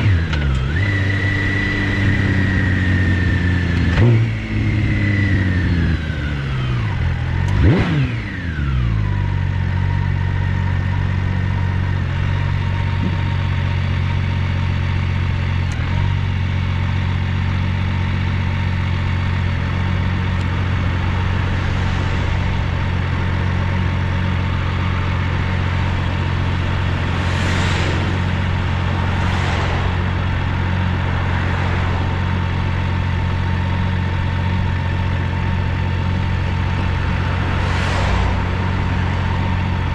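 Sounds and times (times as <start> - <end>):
motorcycle engine idling: 8.3 - 27.2, 30.0 - 37.6, 38.6 - 39.9.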